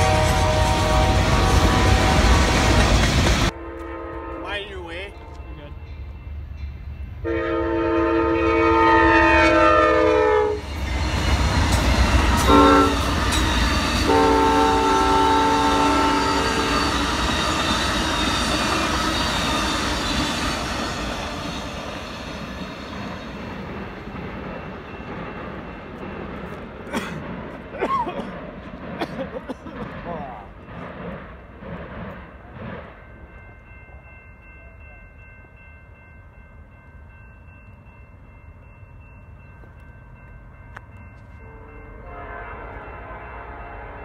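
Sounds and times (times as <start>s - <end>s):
train horn blasts: 0.0s - 2.9s, 3.5s - 5.7s, 7.2s - 10.7s, 12.2s - 13.4s, 14.0s - 17.6s, 41.4s - 44.0s
train cars rumbling and clacking: 0.0s - 44.0s.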